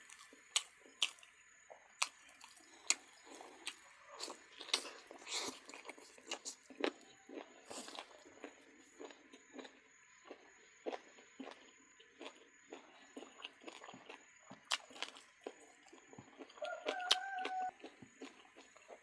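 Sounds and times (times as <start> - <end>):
chewing duck meat: 0.0 - 19.0.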